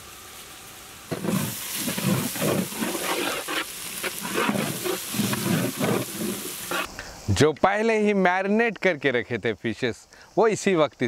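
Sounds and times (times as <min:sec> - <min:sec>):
masala sizzling in oil: 0:00.0 - 0:07.0
faint steady hiss: 0:00.0 - 0:11.0
spatula scraping metal pan: 0:01.1 - 0:06.9.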